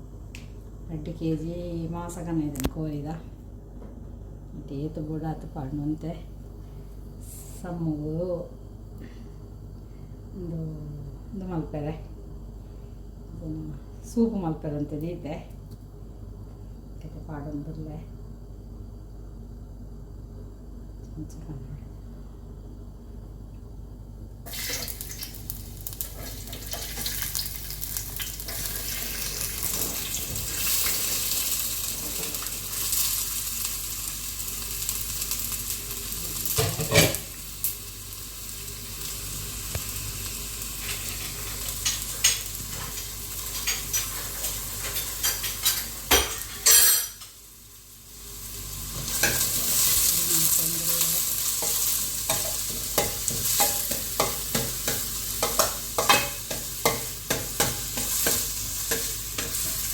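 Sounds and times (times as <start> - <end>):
onions sizzling in hot oil: 24.4 - 59.9.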